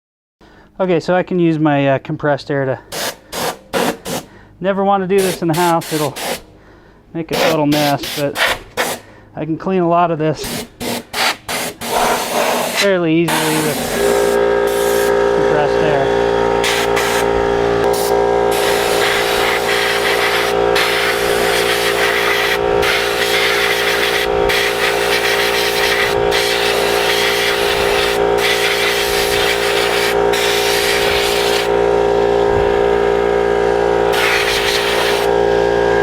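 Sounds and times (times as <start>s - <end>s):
compressed air hissing: 2.9s - 4.4s, 5.2s - 6.6s, 7.3s - 9.1s, 10.4s - 15.1s, 16.6s - 31.7s, 34.1s - 35.3s
steady machine hum: 10.2s - 36.0s.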